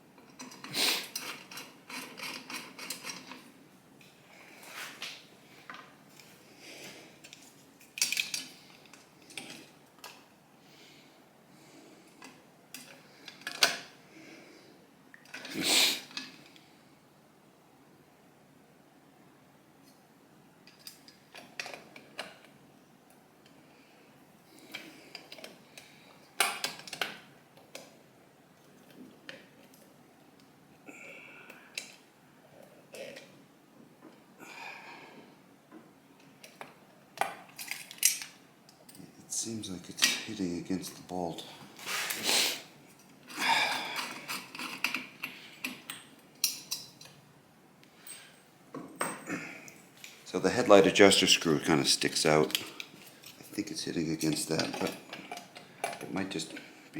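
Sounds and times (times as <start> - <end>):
metal parts clicking and clinking: 0.2 - 3.5, 7.2 - 10.2, 36.4 - 39.0, 43.7 - 47.2, 54.2 - 56.6
metal clinking and scraping: 0.3 - 3.5, 43.0 - 47.2.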